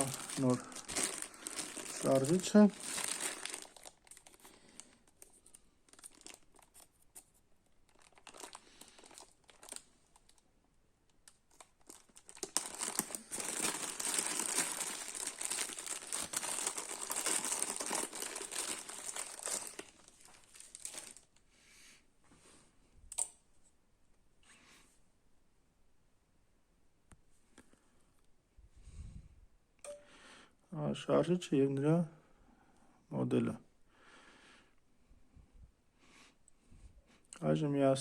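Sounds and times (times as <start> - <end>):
plastic packaging crinkling: 0.0 - 10.4, 11.1 - 21.4.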